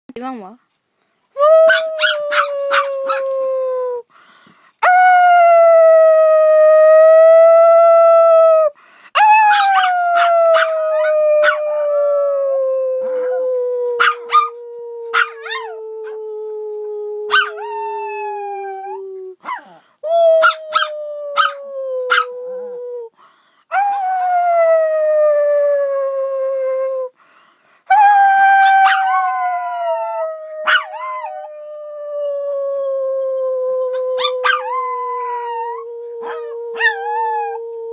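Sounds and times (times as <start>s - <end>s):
dog howling: 1.4s - 4.0s, 4.8s - 22.9s, 27.9s - 37.9s
dog yips and barks: 1.6s - 3.2s, 9.4s - 11.6s, 17.3s - 17.5s, 19.4s - 19.8s, 20.4s - 22.3s, 28.6s - 29.2s, 30.6s - 31.1s, 34.2s - 34.7s.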